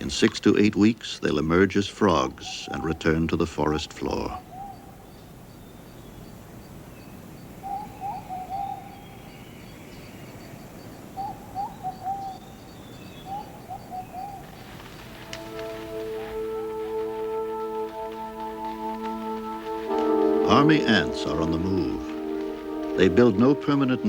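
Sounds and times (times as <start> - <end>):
bird warbling calls: 1.3 - 24.0
faint high ticking: 14.4 - 24.0
music with held tones: 14.8 - 24.0.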